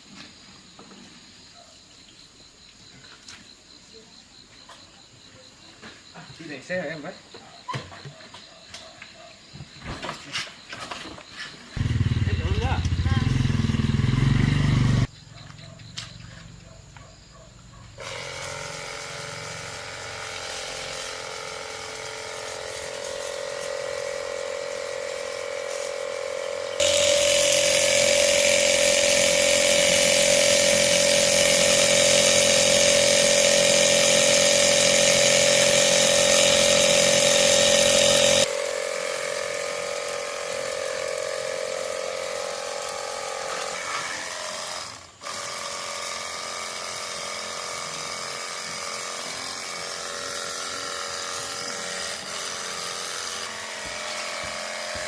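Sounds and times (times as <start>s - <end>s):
electric machine humming: 18.0s - 42.3s.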